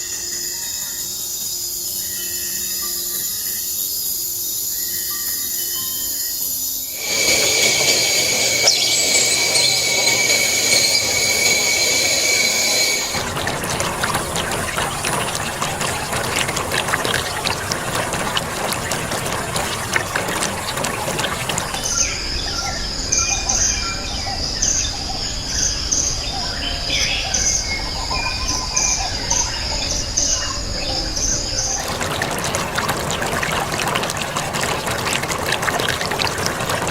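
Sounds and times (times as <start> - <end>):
high insect drone: 0.0 - 24.6
insect trill: 0.0 - 34.3
crackling jungle noise: 0.0 - 36.9.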